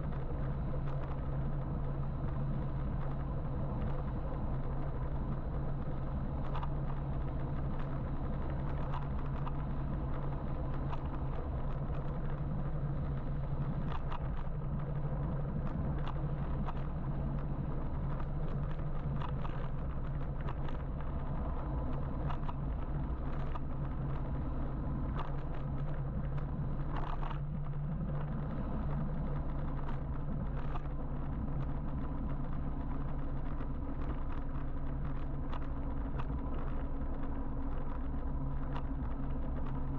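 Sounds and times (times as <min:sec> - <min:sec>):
low hum: 0:00.0 - 0:39.9
motorbike road noise: 0:10.6 - 0:39.9
faint clicks: 0:15.6 - 0:39.9.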